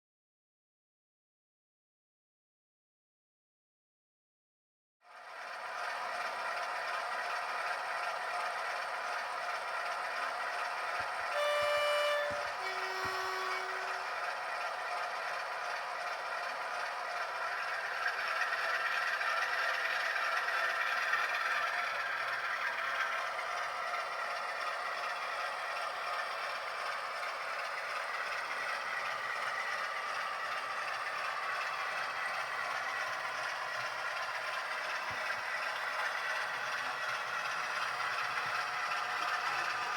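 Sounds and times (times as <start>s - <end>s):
model locomotive engine rattling: 5.1s - 39.9s
two-tone locomotive horn: 11.2s - 14.7s.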